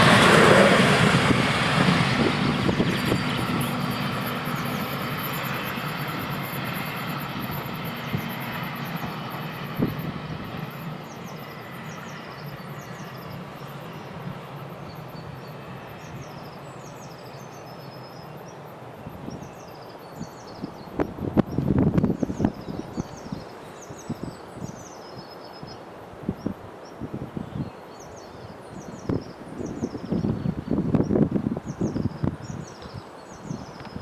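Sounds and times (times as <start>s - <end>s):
diesel railcar rumble: 0.0s - 8.2s.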